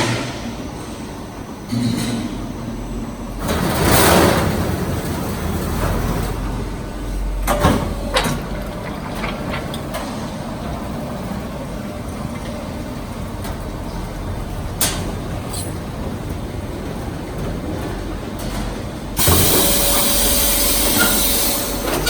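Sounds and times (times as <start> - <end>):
machinery running with low hum: 0.0 - 22.0.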